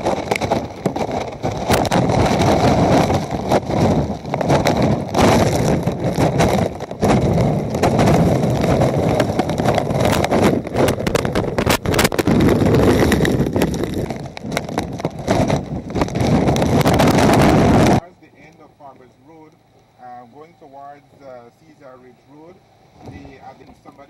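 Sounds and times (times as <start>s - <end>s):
crackling knocks: 0.0s - 18.0s, 23.0s - 23.9s
wind buffeting microphone: 0.0s - 18.0s, 22.7s - 23.8s.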